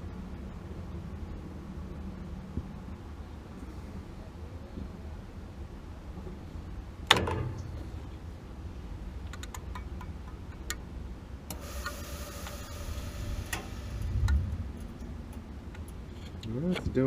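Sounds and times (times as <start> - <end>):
gas burner hissing: 11.5 - 16.1.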